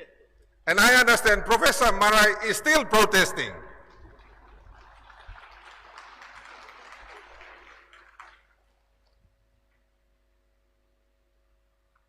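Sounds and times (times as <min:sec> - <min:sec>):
faint audience applause: 0:03.9 - 0:09.2.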